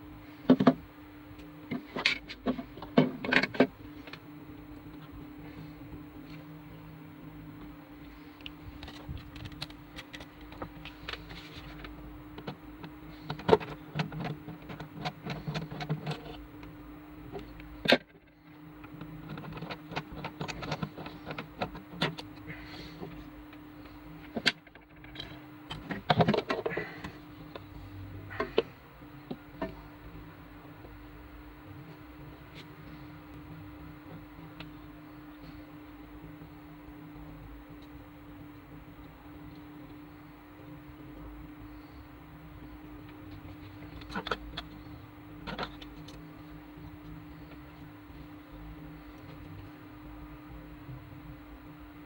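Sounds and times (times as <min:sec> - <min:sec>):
steady low hum: 0:00.0 - 0:52.0
small parts and tools clicking: 0:08.4 - 0:16.7, 0:17.3 - 0:22.5, 0:43.0 - 0:47.9.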